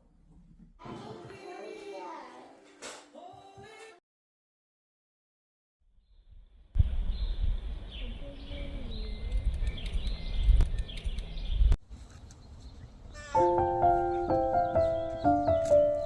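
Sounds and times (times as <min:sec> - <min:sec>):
birds chirping: 0:07.0 - 0:11.8, 0:12.4 - 0:16.0.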